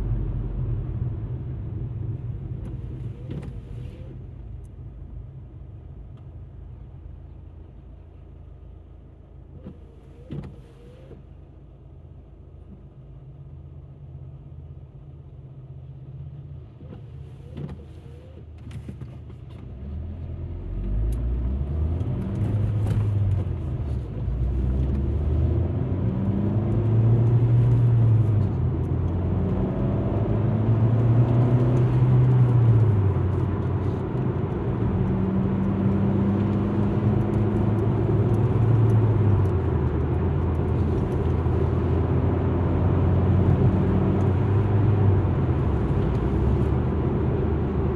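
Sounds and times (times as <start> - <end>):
car engine accelerating: 19.6 - 47.9.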